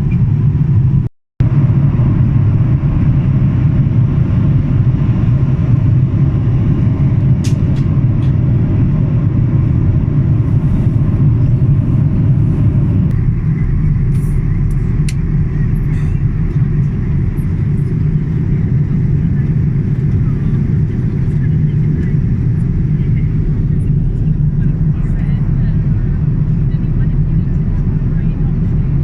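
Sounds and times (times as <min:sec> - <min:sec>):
airplane cabin rumble: 0:00.0 - 0:29.0.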